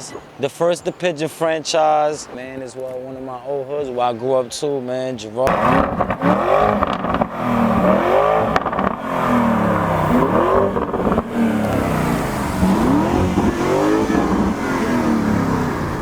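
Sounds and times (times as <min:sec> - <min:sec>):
car engine revving: 0:05.5 - 0:16.0.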